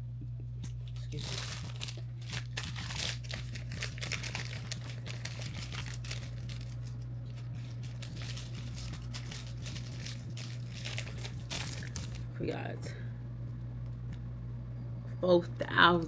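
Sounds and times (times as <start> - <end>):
steady low hum: 0.0 - 16.0
bag crinkling and rustling: 0.9 - 12.3.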